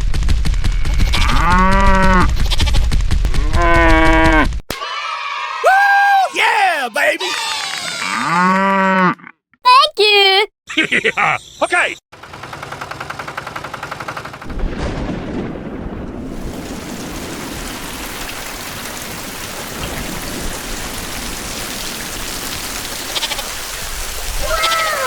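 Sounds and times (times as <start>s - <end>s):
falling water hiss: 16.3s - 25.0s.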